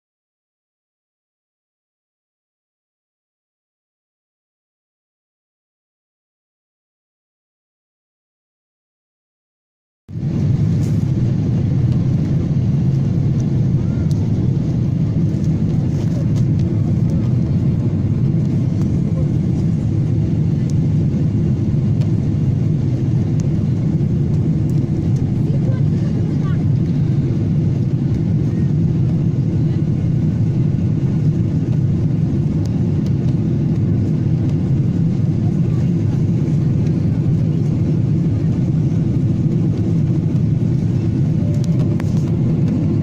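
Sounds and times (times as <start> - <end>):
aircraft cabin drone: 10.1 - 43.0.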